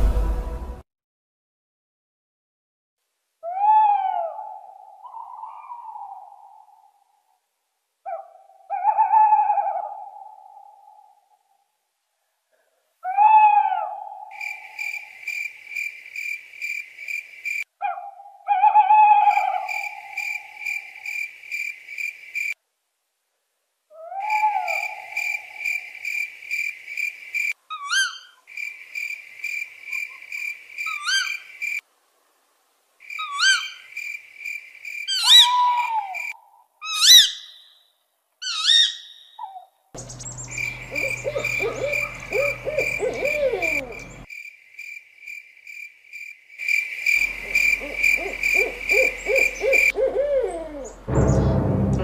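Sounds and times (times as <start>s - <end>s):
low hum: 0.0s - 0.8s, 40.0s - 44.2s, 50.9s - 52.0s
owl-like hooting: 3.4s - 7.2s, 8.1s - 11.2s, 13.0s - 15.2s, 17.8s - 21.1s, 23.9s - 26.0s, 27.7s - 28.4s, 29.9s - 31.5s, 33.2s - 33.9s, 35.1s - 37.6s, 38.4s - 44.3s, 47.2s - 51.1s
rising whistled bird calls: 35.1s - 36.3s, 38.5s - 44.3s, 47.2s - 51.6s
high insect trill: 40.0s - 49.9s.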